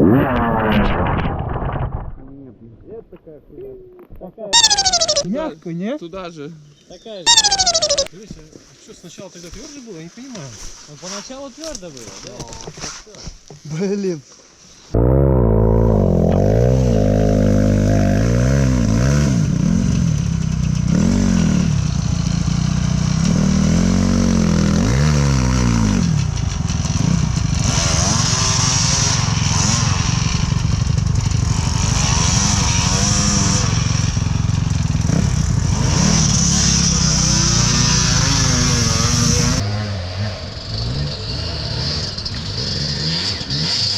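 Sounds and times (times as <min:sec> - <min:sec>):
motorcycle engine revving: 0:15.0 - 0:43.9.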